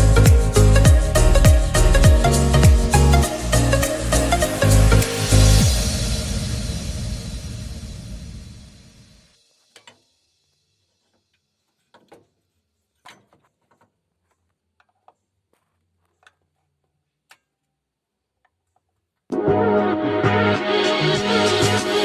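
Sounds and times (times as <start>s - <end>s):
loud music: 0.0s - 9.1s, 19.3s - 22.0s.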